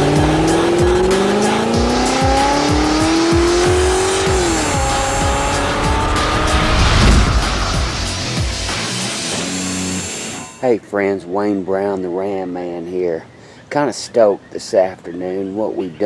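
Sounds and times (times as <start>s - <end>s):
car engine accelerating: 0.0s - 10.2s
intro music with steady beat: 0.0s - 10.4s.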